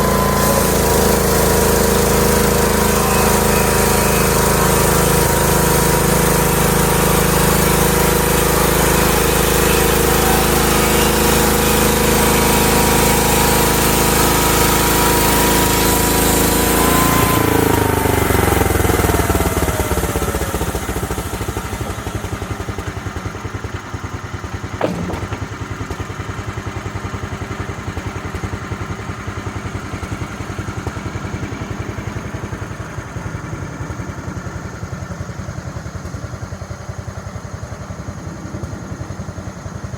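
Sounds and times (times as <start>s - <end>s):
saw blade cutting wood: 0.0s - 17.9s, 24.8s - 25.7s
sawmill engine running: 0.0s - 39.9s
sharp knock: 24.8s - 25.7s.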